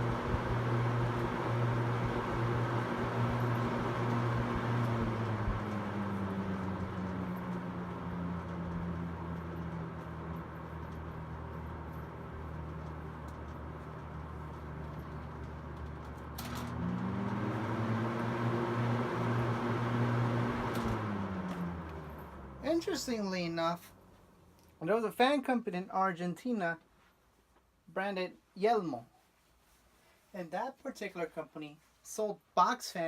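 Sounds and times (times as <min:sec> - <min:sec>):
box fan humming: 0:00.0 - 0:24.1.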